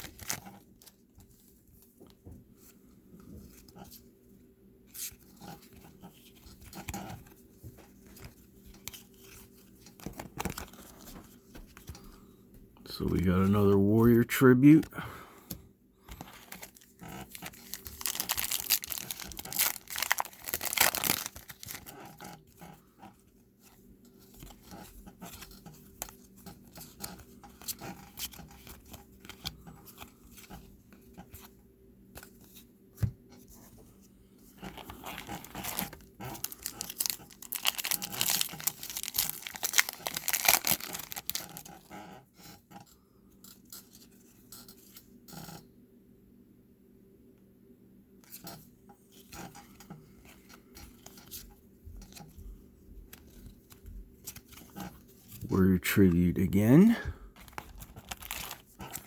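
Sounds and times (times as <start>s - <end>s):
wrappers crinkling and tearing: 0.0s - 0.9s, 16.3s - 22.4s, 34.6s - 42.0s, 57.4s - 59.0s
cards being handled: 0.0s - 1.5s, 4.9s - 12.0s, 16.1s - 22.0s, 34.6s - 41.8s, 53.0s - 59.0s.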